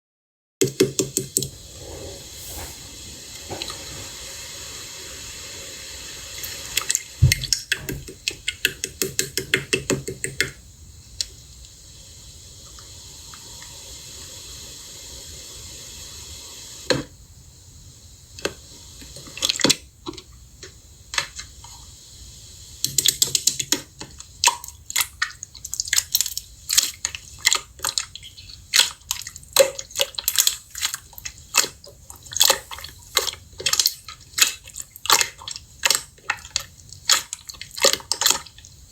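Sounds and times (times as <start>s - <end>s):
faint hiss: 1.2s - 25.0s, 29.4s - 36.0s.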